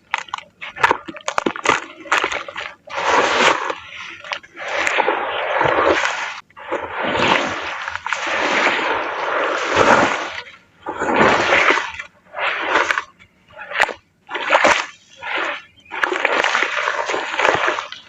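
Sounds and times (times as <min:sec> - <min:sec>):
crumbly pieces crushed into water: 0:00.0 - 0:03.7
water splashing and sloshing: 0:00.0 - 0:18.0.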